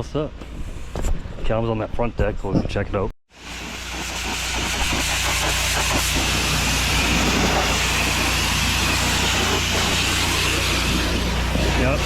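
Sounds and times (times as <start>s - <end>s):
pressure washer engine running: 3.3s - 12.0s
high-pressure water spray hiss: 3.4s - 12.0s.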